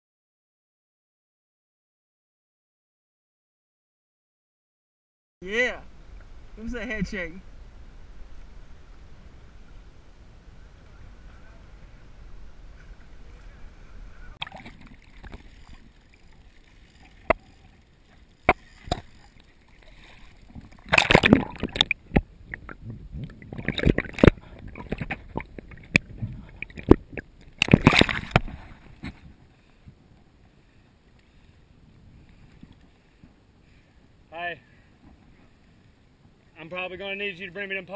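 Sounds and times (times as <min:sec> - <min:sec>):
water splashing around kayak: 0:07.5 - 0:36.5.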